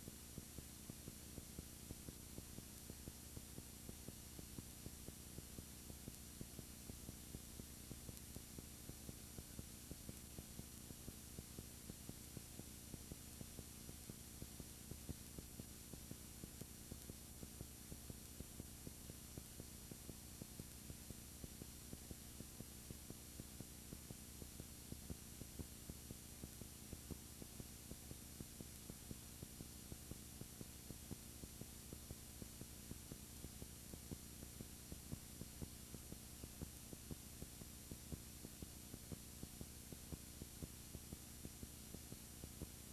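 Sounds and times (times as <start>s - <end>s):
faint electrical hum: 0.0s - 42.9s
light crackling clicks: 2.4s - 12.1s, 12.9s - 24.2s.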